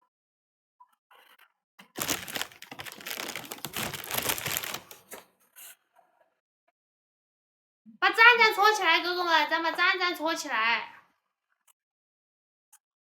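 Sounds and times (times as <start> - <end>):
dense crackling rustling: 2.0 - 5.0.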